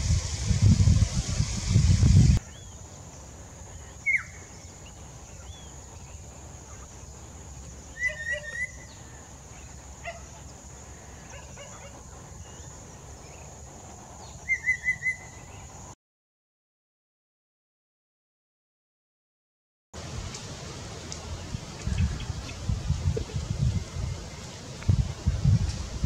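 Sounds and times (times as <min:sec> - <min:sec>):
bird singing whistled phrases: 0:04.0 - 0:04.4, 0:07.9 - 0:09.0, 0:14.5 - 0:15.4.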